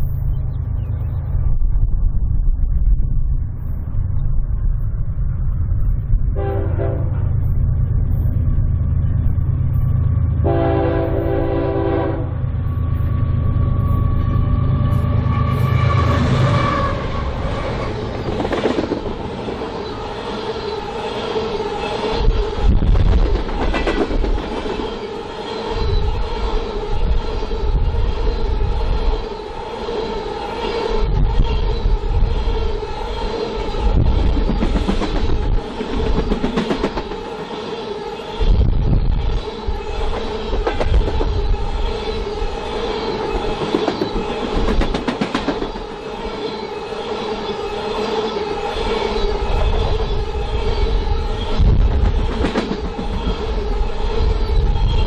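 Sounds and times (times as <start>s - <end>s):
train air horn blasts: 6.4s - 7.2s, 10.4s - 12.4s
wheels clattering on rails: 22.2s - 25.1s, 43.2s - 46.0s.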